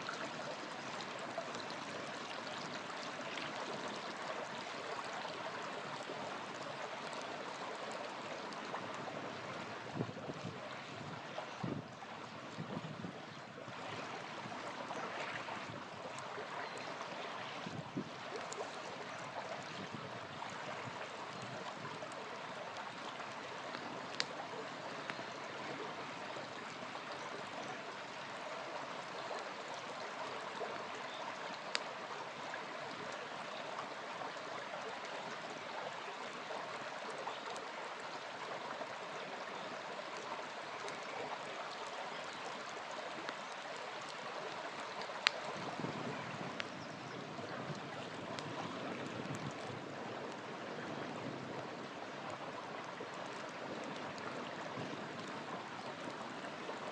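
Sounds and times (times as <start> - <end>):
river flowing: 0.0 - 56.9
campfire crackling: 14.0 - 56.9.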